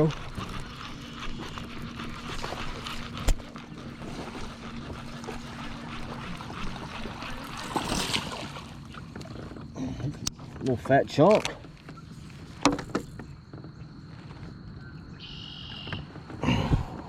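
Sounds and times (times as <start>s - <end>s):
water splashing: 0.0s - 13.4s
water sloshing around kayak: 0.0s - 17.0s.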